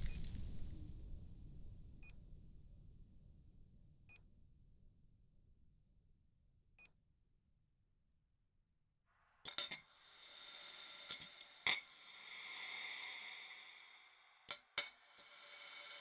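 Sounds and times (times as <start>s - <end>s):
low rumble: 0.0s - 4.1s.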